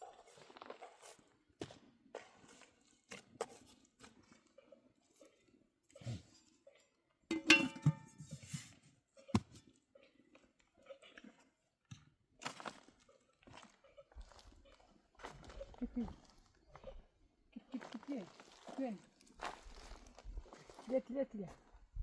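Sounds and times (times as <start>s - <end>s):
objects knocking and scraping: 7.3s - 9.6s.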